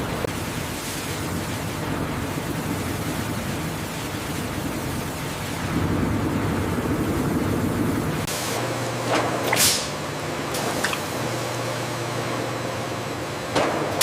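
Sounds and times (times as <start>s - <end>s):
machinery low hum: 0.0s - 14.0s.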